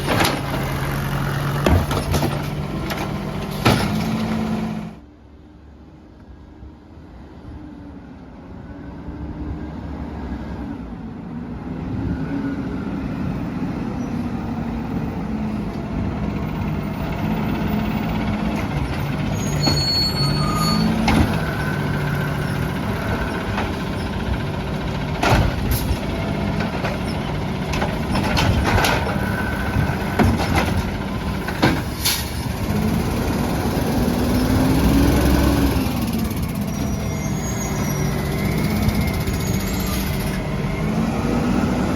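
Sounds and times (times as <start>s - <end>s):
garbage truck engine revving: 0.0s - 5.0s, 15.4s - 41.9s
high squeal: 19.0s - 24.2s, 36.4s - 40.6s.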